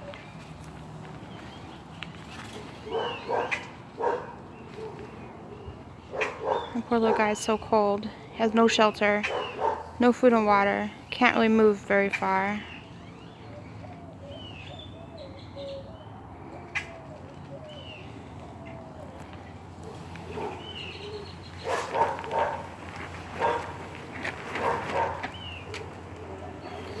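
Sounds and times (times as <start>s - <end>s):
birds chirping: 0.0s - 27.0s
small dog barking: 2.8s - 5.1s, 6.1s - 6.8s, 9.2s - 9.9s, 19.9s - 20.7s, 21.6s - 22.8s, 23.4s - 23.8s, 24.6s - 25.4s.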